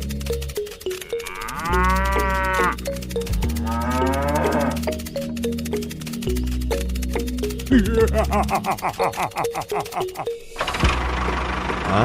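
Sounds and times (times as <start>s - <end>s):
music with plucked melody and bass: 0.0s - 12.0s
cow mooing: 1.0s - 5.0s.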